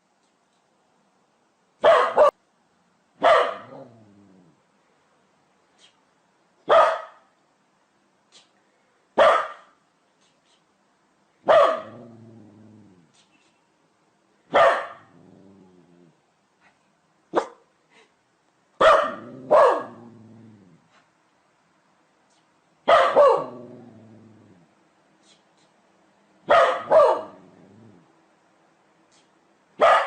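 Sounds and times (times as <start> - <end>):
dog barking: 1.8 - 2.4, 3.2 - 3.9, 6.6 - 7.3, 9.2 - 9.8, 11.4 - 12.0, 14.5 - 15.2, 17.3 - 17.7, 18.8 - 20.0, 22.8 - 23.6, 26.4 - 27.4, 29.8 - 30.0
dog growling low: 3.7 - 4.6, 11.8 - 13.1, 15.1 - 16.2, 19.2 - 20.9, 23.5 - 24.7, 27.3 - 28.1.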